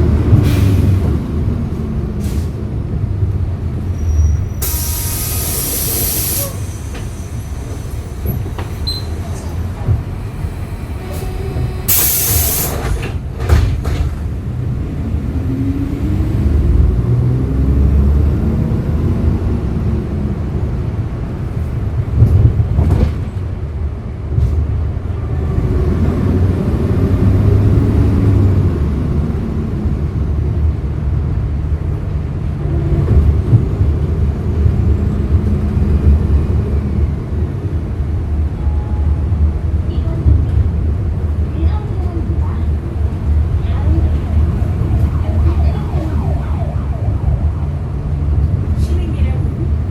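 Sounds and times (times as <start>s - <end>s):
bus engine rumbling: 0.0s - 49.9s
compressed air hiss: 4.6s - 7.5s, 11.9s - 12.9s.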